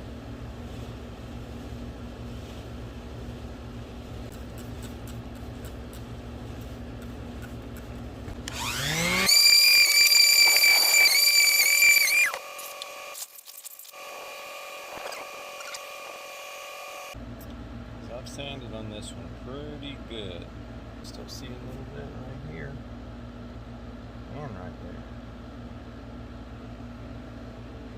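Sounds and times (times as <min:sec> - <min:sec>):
electric sander humming and whining: 0:08.4 - 0:13.1.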